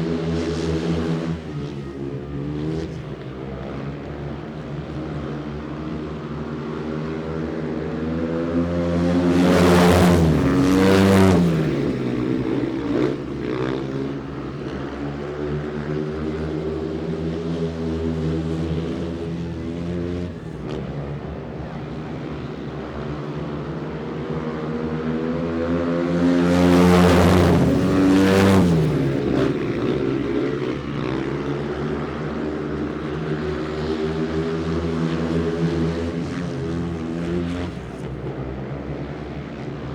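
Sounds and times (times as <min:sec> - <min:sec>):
engine droning passing by: 0:06.3 - 0:21.4, 0:24.6 - 0:38.6.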